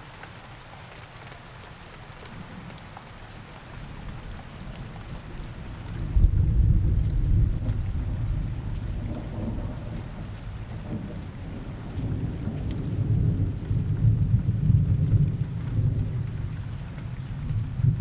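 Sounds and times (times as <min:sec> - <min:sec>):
faint hiss of rain: 0:00.0 - 0:18.0
rolling thunder rumble: 0:06.0 - 0:16.5.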